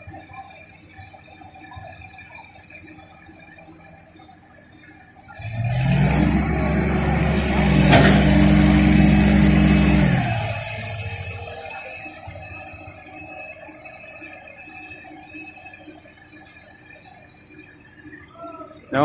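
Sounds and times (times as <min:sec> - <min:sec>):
high whine: 0:00.0 - 0:19.0
crane engine revving: 0:05.4 - 0:14.0.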